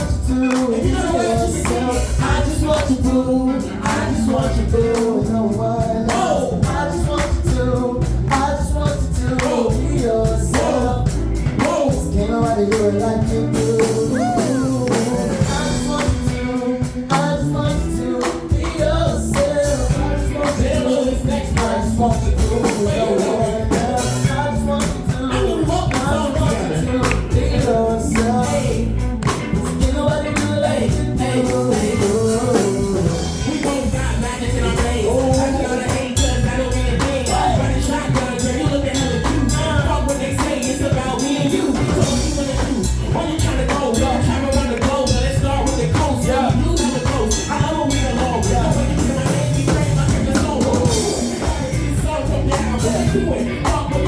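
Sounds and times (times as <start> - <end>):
music with beat and singing: 0.0 - 54.0.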